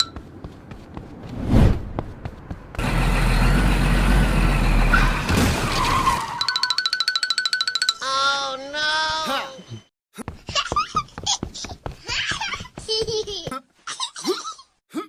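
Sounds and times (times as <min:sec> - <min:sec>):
engine running with deep rumble: 0:00.2 - 0:05.4
whoosh of something passing: 0:01.2 - 0:02.1.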